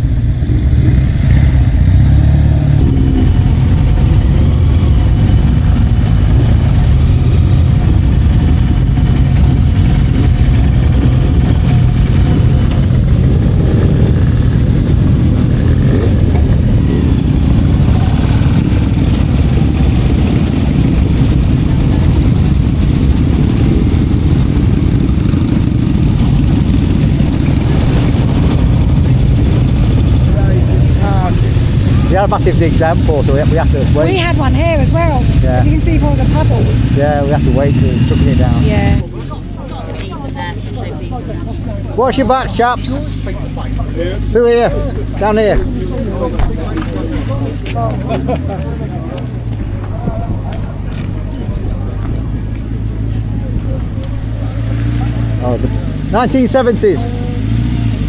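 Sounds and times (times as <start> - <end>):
constant low rumble: 0.0 - 58.0
motorcycle engine running: 0.0 - 58.0.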